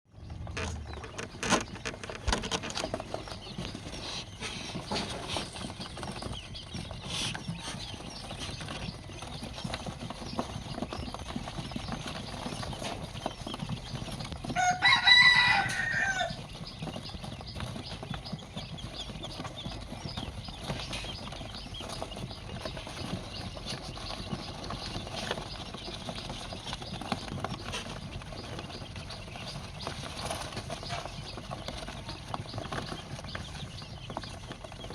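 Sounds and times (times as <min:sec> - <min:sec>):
rooster crowing: 0:14.4 - 0:16.5.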